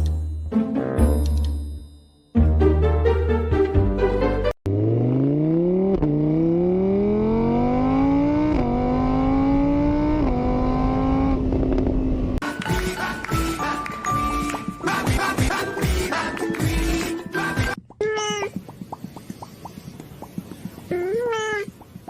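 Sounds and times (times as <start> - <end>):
car engine accelerating: 4.6 - 12.4.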